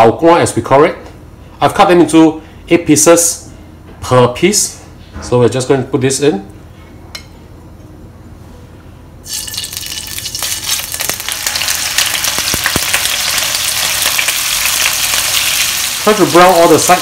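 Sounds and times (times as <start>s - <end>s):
tofu sizzling in hot oil: 9.2s - 17.0s.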